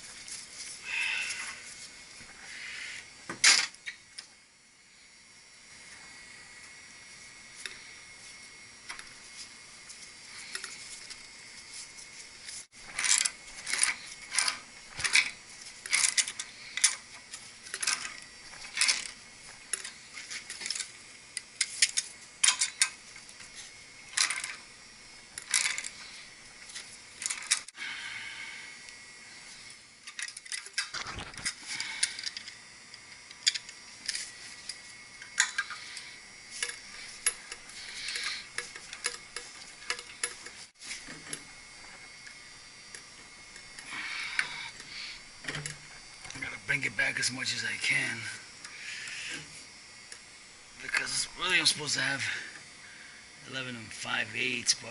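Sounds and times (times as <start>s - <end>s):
metal tools and pipe fittings clanking: 12.9s - 21.0s, 21.6s - 23.0s, 25.4s - 27.7s, 33.4s - 41.5s.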